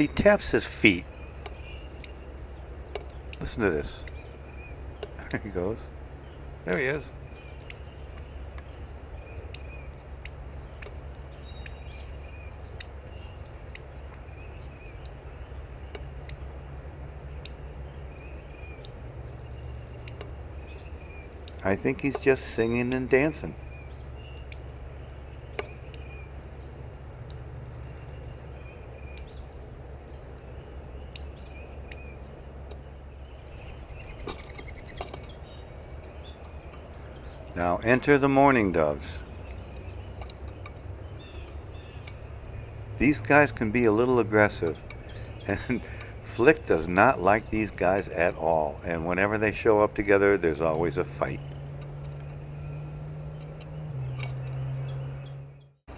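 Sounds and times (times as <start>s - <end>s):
steady low rumble: 0.0s - 11.9s, 35.3s - 51.6s
faint high bird chirps: 0.0s - 16.4s, 17.4s - 26.7s, 44.6s - 48.8s.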